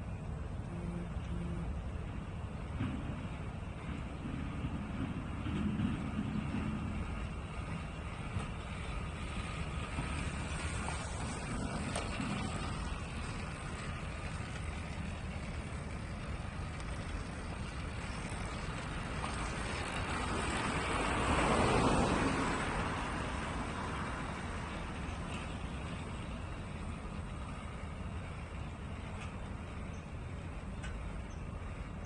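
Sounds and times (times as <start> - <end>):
traffic noise: 0.0 - 32.0
wind rumble: 0.0 - 32.0
vehicle passing by: 18.1 - 26.8.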